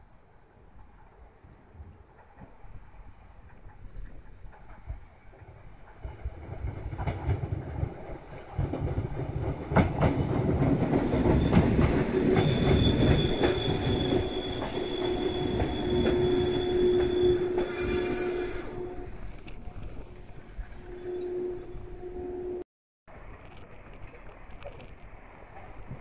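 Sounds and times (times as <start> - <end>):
high-pitched brake squeal: 12.3 - 19.2, 20.2 - 22.6.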